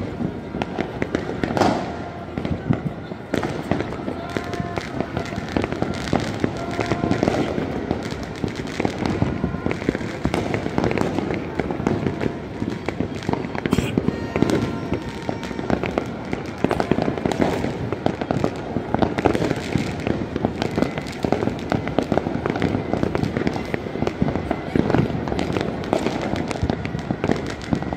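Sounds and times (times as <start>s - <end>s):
fireworks banging and crackling: 0.0s - 27.9s.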